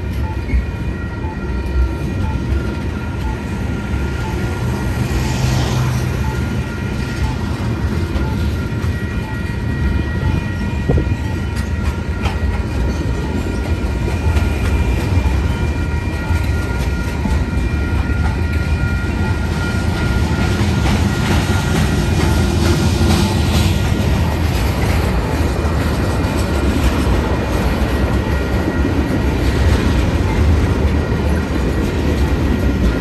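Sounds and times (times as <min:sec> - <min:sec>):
clickety-clack over rail joints: 0:00.0 - 0:33.0
wheels rumbling on rail: 0:00.0 - 0:33.0.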